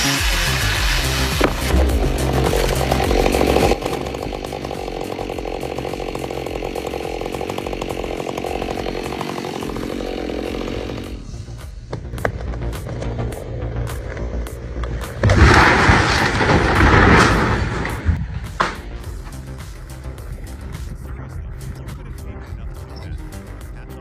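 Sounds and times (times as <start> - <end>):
chainsaw cutting wood: 0.0 - 13.2.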